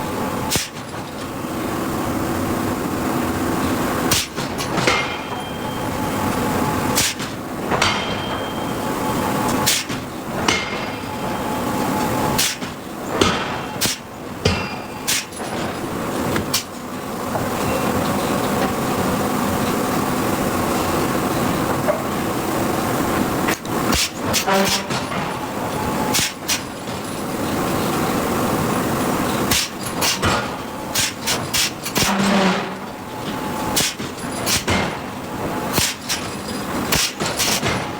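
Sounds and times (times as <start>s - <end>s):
hammer machinery running: 0.0s - 37.9s
forging hammer striking hot steel: 4.1s - 5.8s, 7.0s - 11.5s, 12.4s - 15.8s, 23.9s - 27.0s, 29.5s - 33.0s, 33.7s - 35.1s, 35.7s - 37.9s.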